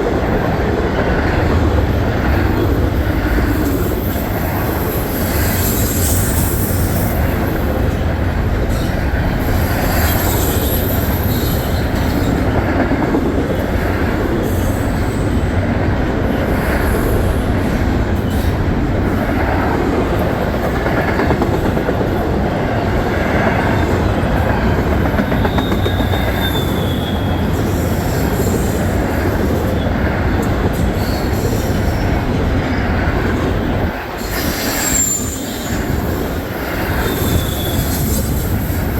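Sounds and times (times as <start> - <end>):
freight train wheels on rail: 0.0 - 38.9
wheels squealing: 25.3 - 28.8, 34.2 - 36.1, 36.7 - 38.8.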